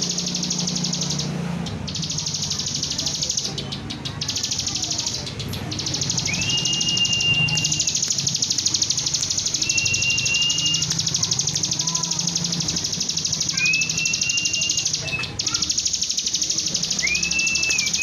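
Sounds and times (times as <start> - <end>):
long level whistles: 5.8 - 18.0.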